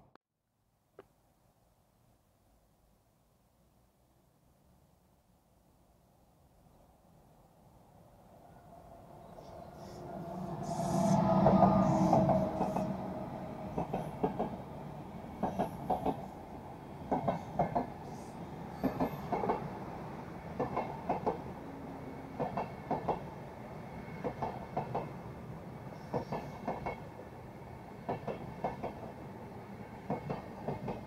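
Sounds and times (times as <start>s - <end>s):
train rolling rumble: 8.8s - 31.0s
train wheels clickety-clack: 11.3s - 14.6s, 15.3s - 16.4s, 17.1s - 18.1s, 18.8s - 19.8s, 20.5s - 21.5s, 22.3s - 23.3s, 24.2s - 25.2s, 25.9s - 27.2s, 28.0s - 29.2s, 29.8s - 31.0s.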